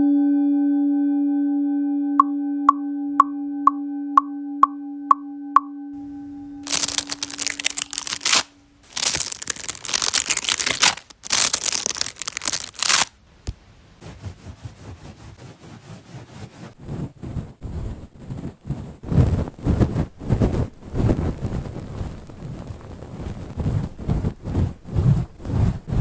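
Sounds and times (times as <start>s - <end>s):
ear cleaning scratching and crinkling: 6.0s - 26.0s.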